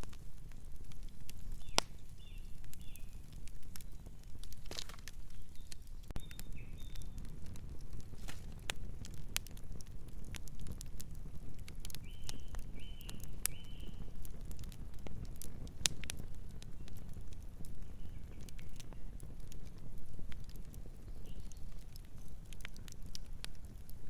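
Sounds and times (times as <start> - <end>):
fire crackling and popping: 0.0 - 24.0
bird chirps: 5.3 - 7.2.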